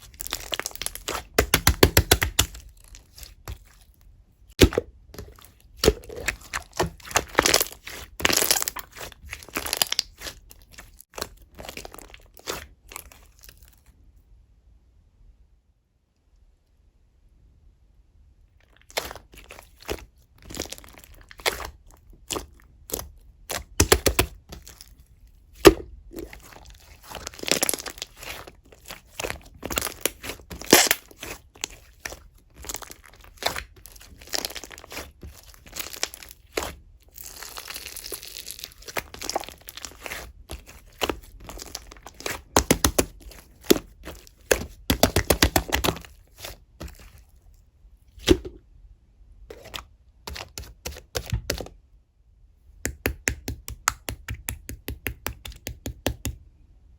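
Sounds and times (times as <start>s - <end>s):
slime squeezed sticky pops: 22.3s - 24.6s, 29.7s - 31.3s.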